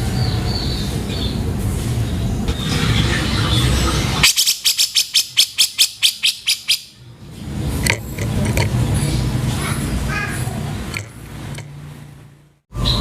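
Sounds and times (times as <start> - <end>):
noisy background: 0.0 - 13.0
bird chattering call: 2.9 - 7.0.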